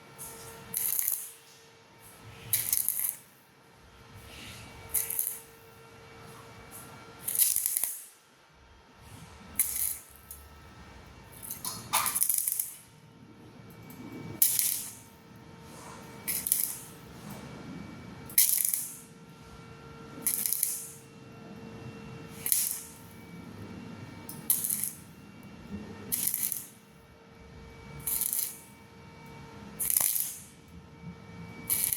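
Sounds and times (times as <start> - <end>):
welding arc crackling and hissing: 0.0 - 3.4, 4.1 - 8.2, 9.0 - 13.6, 14.2 - 15.2, 16.2 - 17.2, 18.3 - 19.2, 20.2 - 21.1, 22.3 - 23.4, 24.3 - 25.2, 25.9 - 26.9, 27.9 - 28.8, 29.8 - 30.6, 31.7 - 31.9.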